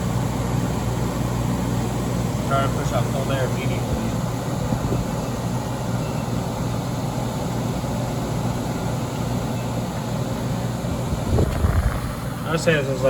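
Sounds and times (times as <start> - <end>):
air conditioner running: 0.0 - 13.0.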